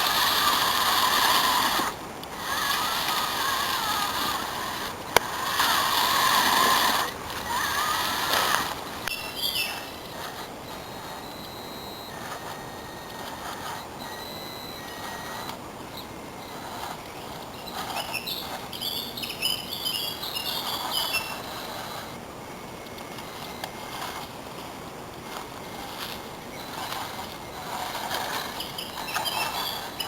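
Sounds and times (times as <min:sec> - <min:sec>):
faint high electric whine: 0:00.0 - 0:30.0
bird chirping: 0:09.1 - 0:10.2, 0:17.2 - 0:21.5.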